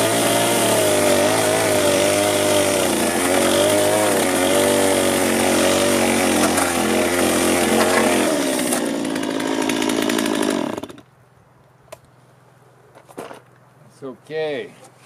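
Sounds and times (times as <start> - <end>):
power tool motor under load: 0.0 - 11.0.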